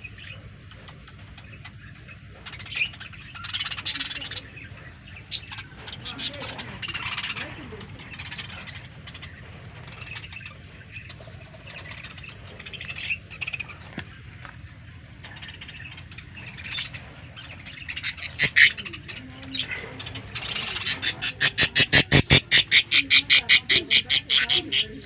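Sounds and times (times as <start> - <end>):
birds chirping and calling: 0.0 - 25.0
bird fast repeated calls: 15.3 - 25.0.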